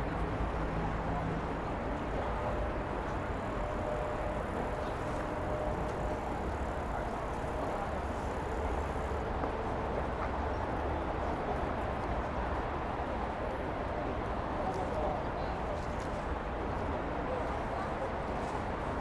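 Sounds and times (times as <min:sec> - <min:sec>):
faint hum: 0:00.0 - 0:09.9.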